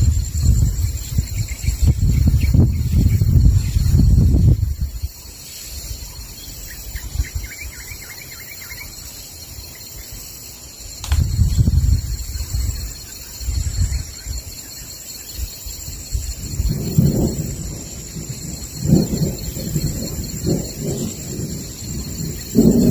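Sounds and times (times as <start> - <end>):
low rumbles of thunder: 0.0 - 8.0, 10.9 - 22.9
high chorus of insects: 0.0 - 22.9
bird chirping: 5.1 - 10.2
thunder crack: 16.3 - 22.9.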